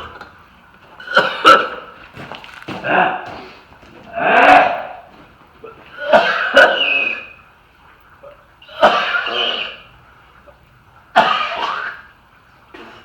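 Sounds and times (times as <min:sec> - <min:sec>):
person coughing: 0:01.0 - 0:01.9, 0:05.9 - 0:07.3, 0:08.7 - 0:09.8, 0:11.2 - 0:12.1.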